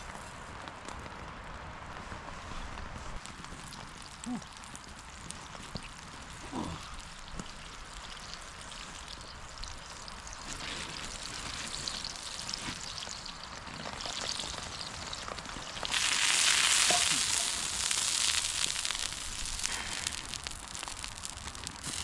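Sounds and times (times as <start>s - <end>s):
oil sizzling in a frying pan: 7.0s - 22.0s.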